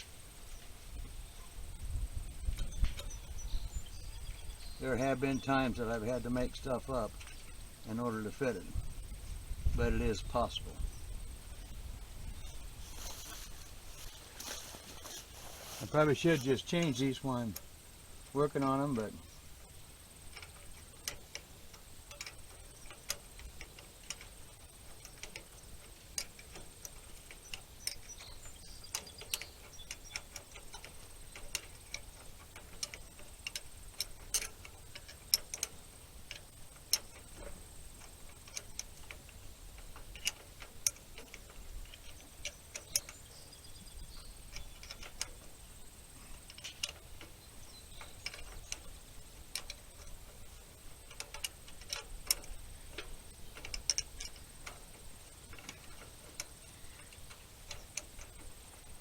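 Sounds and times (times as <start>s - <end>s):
hand tools clicking on metal parts: 12.4s - 59.0s.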